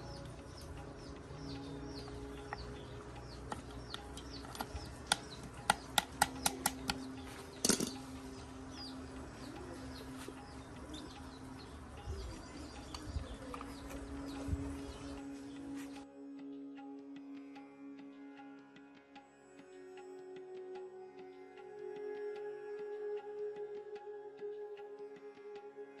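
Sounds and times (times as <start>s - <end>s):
steady low hum: 0.0s - 16.0s
small birds chirping: 0.0s - 17.6s
sharp taps: 3.4s - 8.1s.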